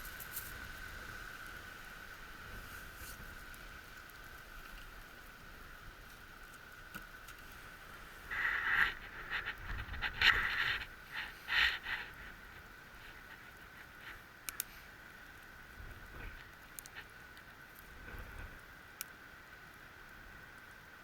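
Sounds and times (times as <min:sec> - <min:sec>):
campfire hissing and crackling: 0:00.0 - 0:21.0.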